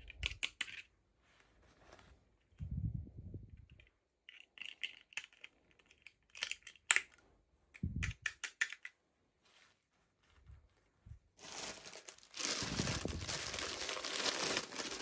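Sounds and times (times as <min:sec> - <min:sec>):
plastic toy pieces clicking: 0:00.0 - 0:00.9, 0:03.7 - 0:07.2, 0:08.0 - 0:09.0.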